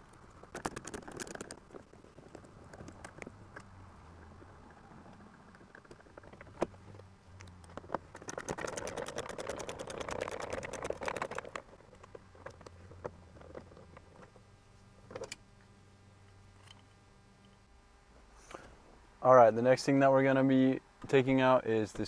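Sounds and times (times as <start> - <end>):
driver rapid clicking: 0.5 - 3.3, 7.9 - 11.7.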